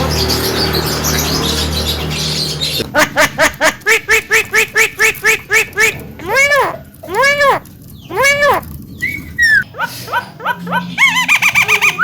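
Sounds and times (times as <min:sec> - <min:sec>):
myna calling: 0:03.9 - 0:12.0.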